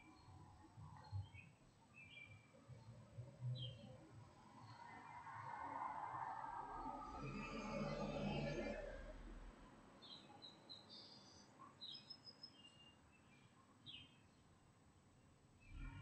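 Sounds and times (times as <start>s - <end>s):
small songbirds chirping: 0.0s - 5.2s, 10.0s - 16.0s.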